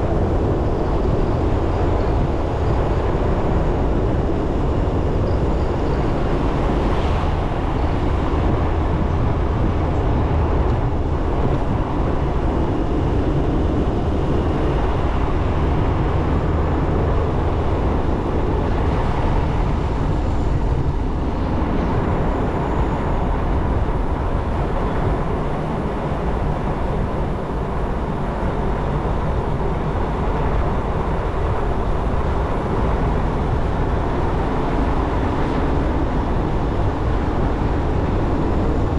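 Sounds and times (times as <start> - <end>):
motorcycle engine and road noise: 0.0 - 38.9.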